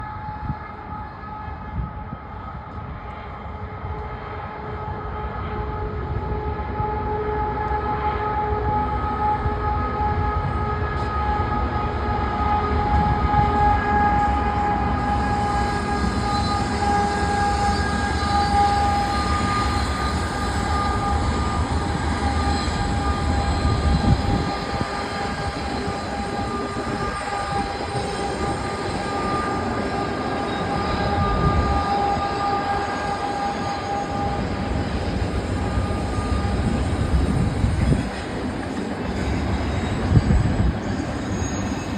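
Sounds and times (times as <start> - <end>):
freight train wheels rumbling: 0.0 - 41.9
high-pitched wheel squeal: 13.0 - 38.2, 39.0 - 41.9.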